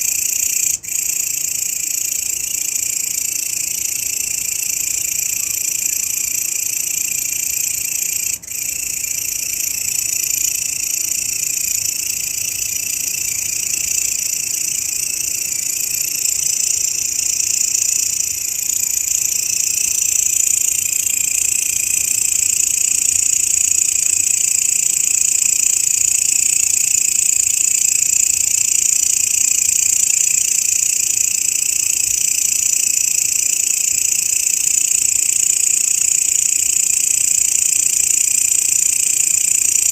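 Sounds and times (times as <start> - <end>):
grasshopper shrill buzzing: 6.8 - 29.6.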